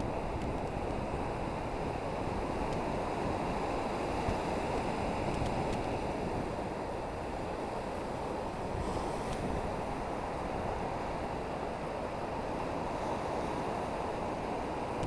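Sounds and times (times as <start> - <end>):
surf washing against rocks: 0.0 - 15.0
wind: 0.0 - 15.0.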